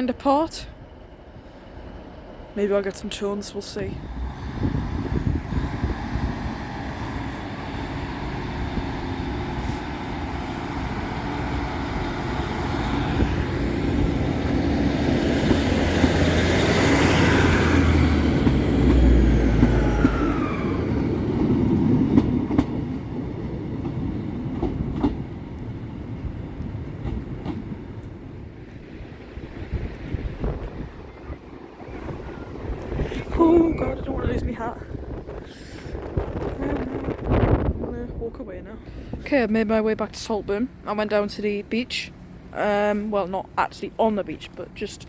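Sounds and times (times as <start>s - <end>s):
diesel train engine and wheel rumble: 0.0s - 45.0s
falling whines: 19.3s - 21.1s.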